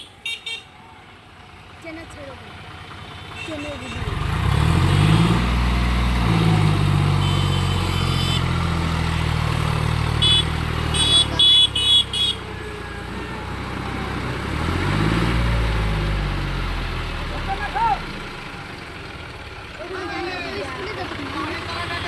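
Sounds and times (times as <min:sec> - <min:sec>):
vehicle horn toots: 0:00.0 - 0:00.8, 0:03.2 - 0:04.2, 0:07.1 - 0:08.6, 0:10.2 - 0:12.5
diesel engine revving: 0:01.4 - 0:22.0.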